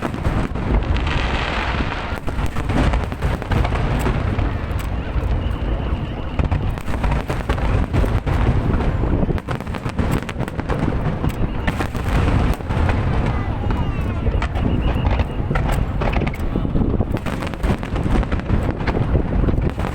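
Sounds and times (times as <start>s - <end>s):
fireworks bangs and crackles: 0.0s - 19.9s.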